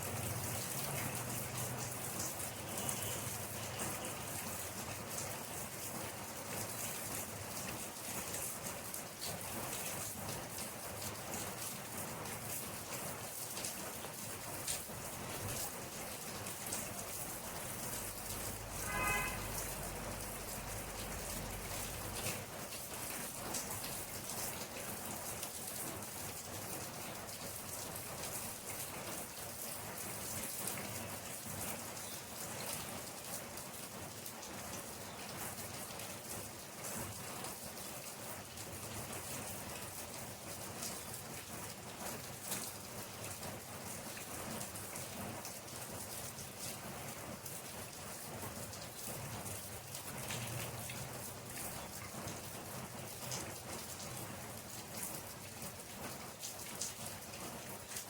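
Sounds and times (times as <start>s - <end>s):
rain drops pattering: 0.0s - 58.0s
brief high-pitched sound: 18.8s - 19.6s.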